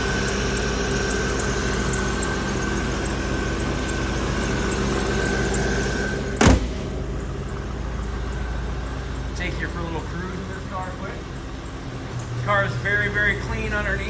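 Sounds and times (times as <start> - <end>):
car engine idling: 0.0 - 14.0
car hood slamming shut: 6.4 - 7.2.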